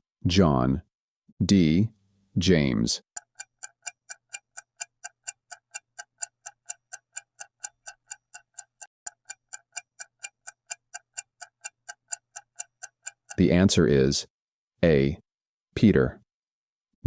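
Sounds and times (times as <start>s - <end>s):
clock ticking timer: 3.0s - 13.9s.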